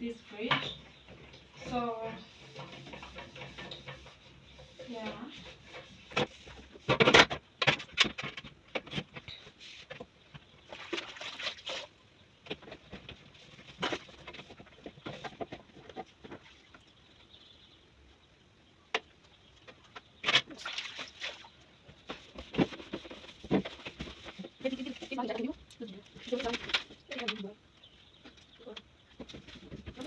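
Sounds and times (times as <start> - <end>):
knocks and clatters cleaning fridge: 0.3 - 9.2.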